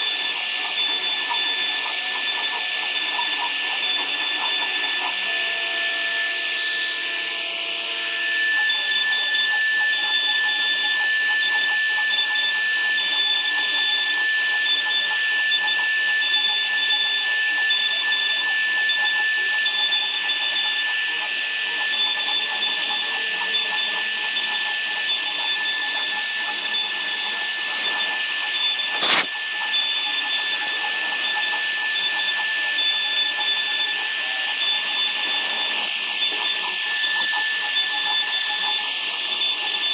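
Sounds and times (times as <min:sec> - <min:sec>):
power tool whining: 0:27.4 - 0:29.4
sharp click: 0:27.7 - 0:28.2, 0:28.8 - 0:29.4.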